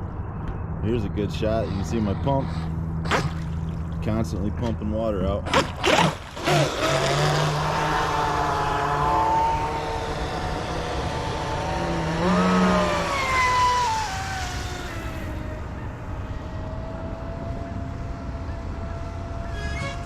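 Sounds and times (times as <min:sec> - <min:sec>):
rc boat electric motor whining: 0:05.5 - 0:20.0.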